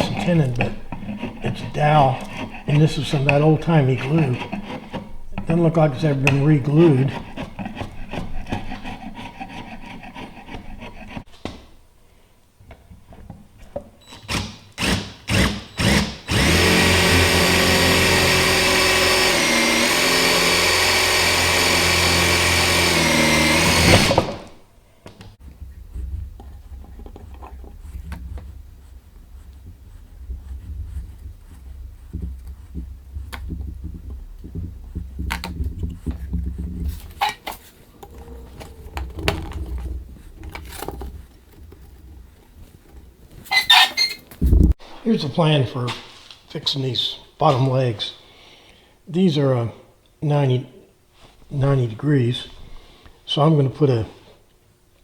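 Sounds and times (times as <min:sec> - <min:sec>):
scraping on wood: 0:00.0 - 0:11.6, 0:14.3 - 0:24.6, 0:25.2 - 0:44.8
power drill running: 0:14.1 - 0:24.6, 0:37.0 - 0:41.8.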